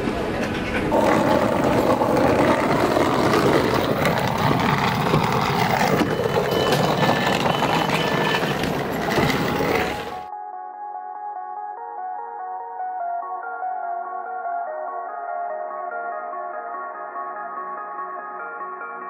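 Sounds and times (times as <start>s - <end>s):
train rumbling and rattling: 0.0s - 10.3s.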